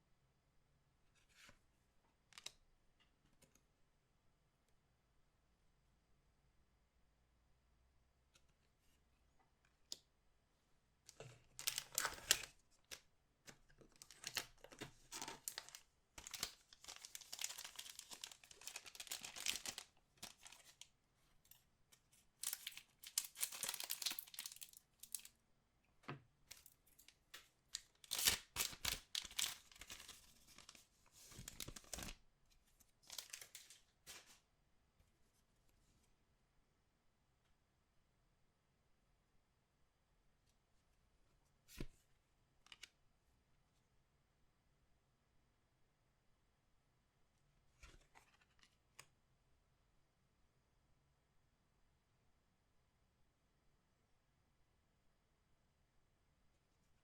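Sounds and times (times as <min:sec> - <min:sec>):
plastic wrappers tearing and crinkling: 0:11.6 - 0:12.5, 0:14.0 - 0:20.8, 0:22.4 - 0:25.3, 0:28.0 - 0:30.8, 0:33.1 - 0:34.3.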